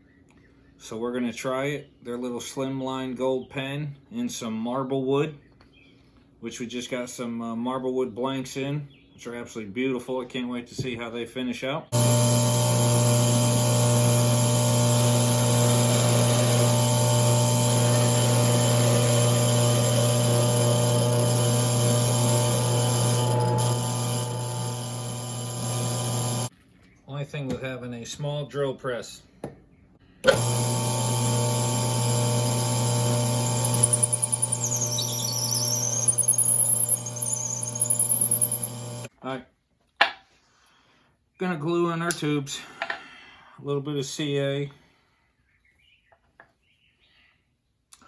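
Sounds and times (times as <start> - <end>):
drill press motor humming: 12.0 - 26.5, 30.2 - 39.1
high wavering squeal: 33.8 - 38.8.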